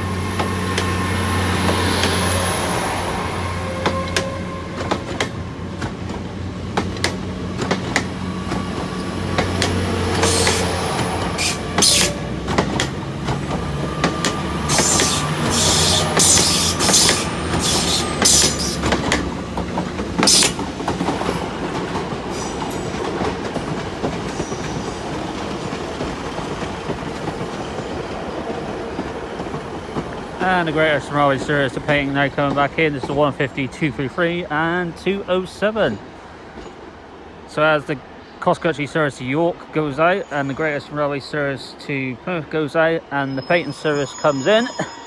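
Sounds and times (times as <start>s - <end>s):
diesel train engine hum: 0.0s - 32.8s
high-pitched wheel squeals: 0.2s - 5.3s, 9.6s - 12.5s, 14.0s - 19.2s, 20.2s - 20.7s, 43.1s - 45.0s
wheels clicking over rail joints: 3.7s - 33.4s.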